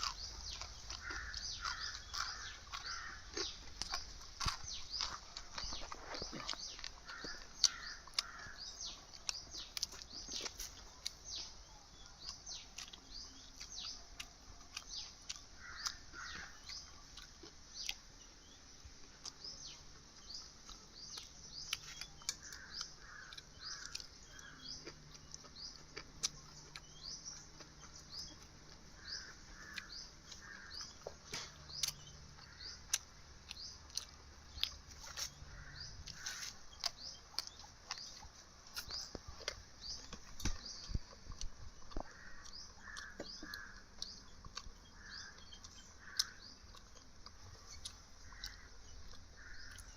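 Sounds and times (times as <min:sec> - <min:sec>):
lower bird calls: 0:00.0 - 0:18.0, 0:19.2 - 0:49.9
birds chirping: 0:00.0 - 0:49.9.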